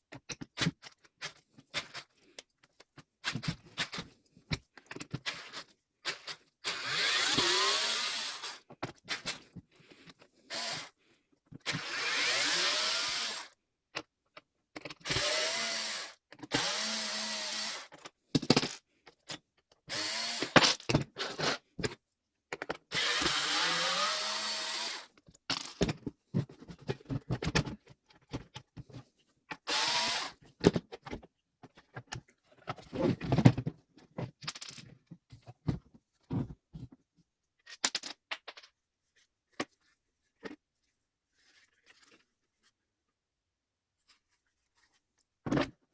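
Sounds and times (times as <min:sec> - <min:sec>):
electric chainsaw motor whine: 0:23.0 - 0:25.1.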